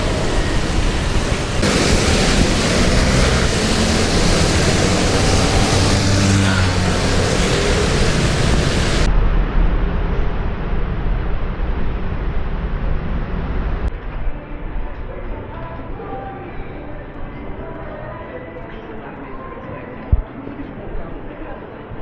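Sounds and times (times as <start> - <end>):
low engine hum: 0.0 - 9.1
street traffic rush: 0.0 - 9.1.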